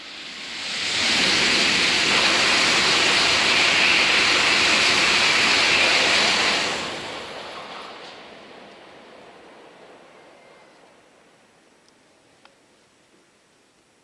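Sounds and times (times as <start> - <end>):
high-speed train passing: 0.0 - 12.3.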